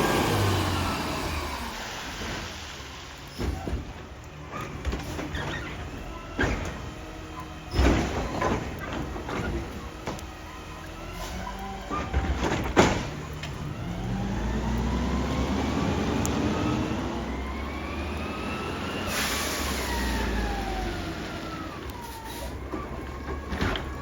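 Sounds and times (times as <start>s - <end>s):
garbage truck bang: 0.0s - 10.7s, 11.4s - 15.9s
truck engine and hydraulic whine: 0.0s - 24.0s.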